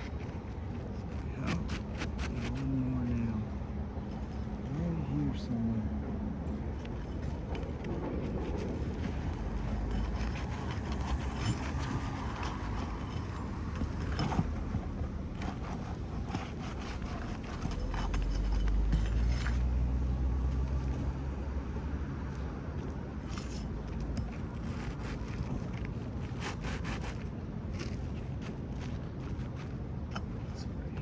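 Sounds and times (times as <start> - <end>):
metal tool scraping shingles: 0.0 - 3.1, 6.8 - 21.0, 23.2 - 30.4
steady low rumble: 0.0 - 26.4.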